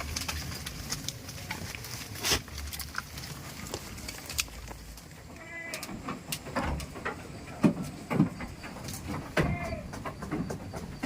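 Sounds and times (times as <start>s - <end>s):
goat bleating: 5.3s - 6.0s, 9.4s - 9.9s
scattered clicks and knocks: 5.7s - 11.0s.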